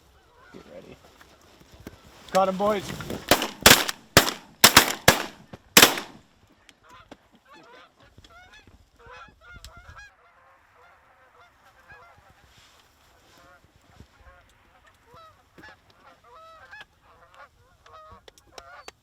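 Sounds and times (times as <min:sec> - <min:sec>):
shotgun blasts: 0:03.3 - 0:06.2.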